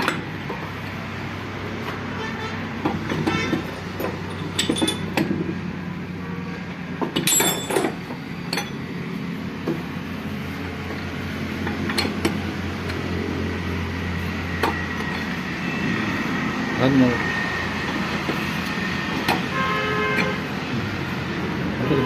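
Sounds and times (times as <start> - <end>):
metal parts clinking: 4.0 - 5.2, 7.2 - 8.8
low drone: 12.5 - 19.2.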